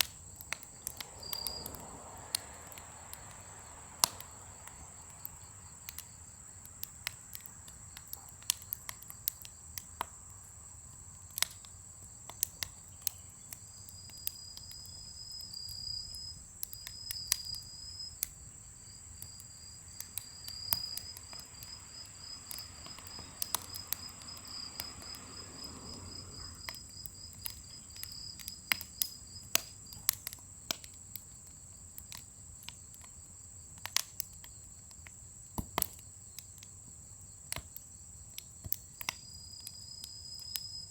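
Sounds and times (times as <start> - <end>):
firewood crackling and popping: 0.0 - 40.9
high insect drone: 14.4 - 28.5.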